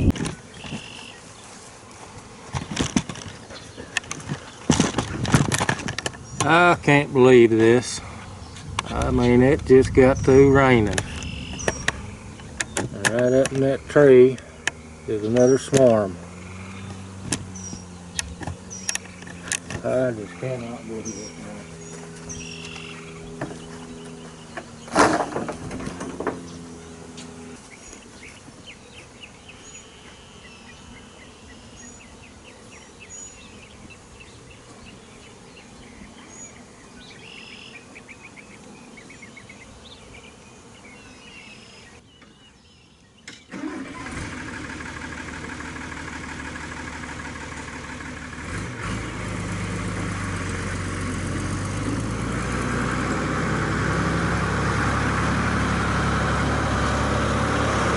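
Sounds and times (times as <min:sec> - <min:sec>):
vehicle engine humming: 0:00.0 - 0:31.4, 0:43.5 - 0:57.9
birds chirping: 0:00.0 - 0:44.0, 0:47.0 - 0:57.9
insects: 0:00.0 - 0:50.7.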